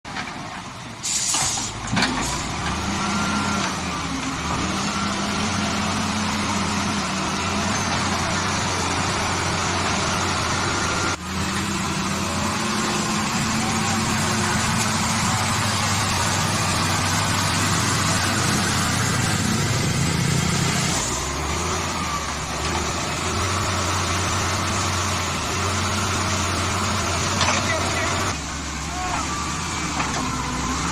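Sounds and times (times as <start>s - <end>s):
bulldozer diesel engine: 0.0s - 30.9s
loud hissing bursts: 1.0s - 1.8s.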